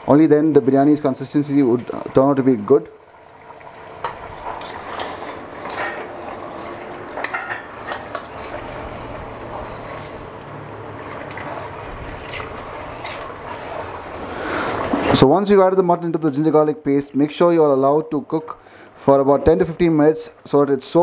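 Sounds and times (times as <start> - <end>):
metal spoon scraping a pot: 4.4 - 10.4, 11.3 - 13.9.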